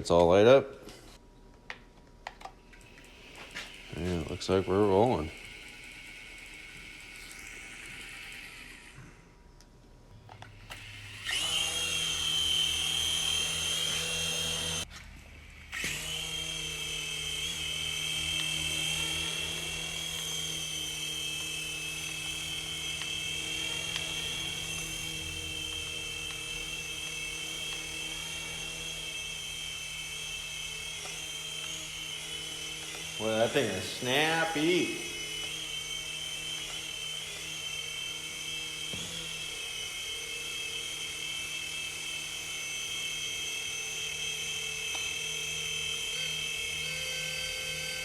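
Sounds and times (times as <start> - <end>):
toy helicopter motor whine: 2.8 - 9.4, 10.2 - 48.0.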